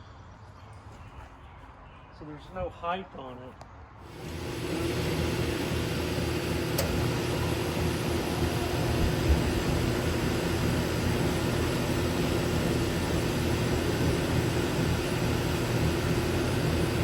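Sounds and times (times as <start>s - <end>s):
compressor humming: 4.0s - 17.0s
condenser fan rushing air: 4.0s - 17.0s.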